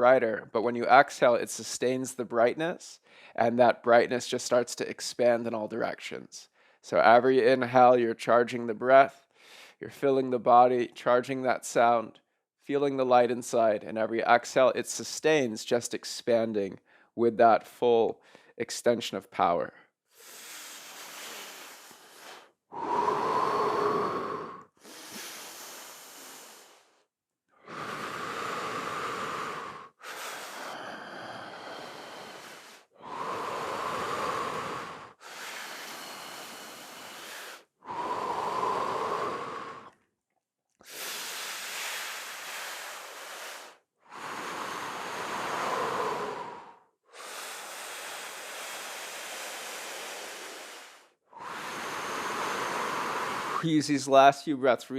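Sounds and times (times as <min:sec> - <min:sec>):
person breathing deeply: 0:03.0 - 0:03.4, 0:20.1 - 0:40.0, 0:40.8 - 0:53.7.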